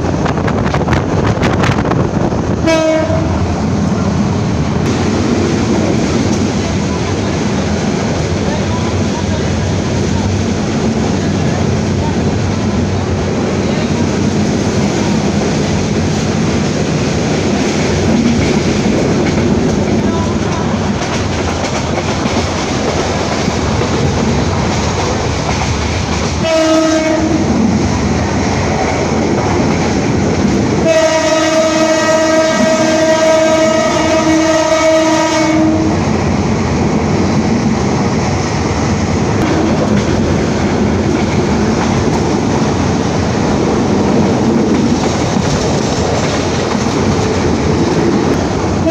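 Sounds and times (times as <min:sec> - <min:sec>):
train wheels on rails: 0:00.0 - 0:48.9
train horn blasts: 0:02.6 - 0:03.4, 0:26.4 - 0:27.5, 0:30.8 - 0:36.1.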